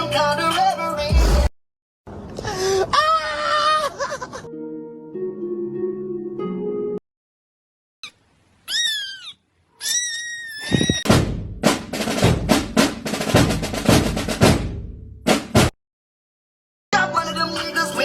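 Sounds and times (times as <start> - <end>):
music: 0.0 - 1.5, 4.5 - 7.0, 11.1 - 15.7, 17.0 - 18.0
high-pitched animal-like calls: 8.0 - 11.1
snare drum roll: 11.1 - 15.7.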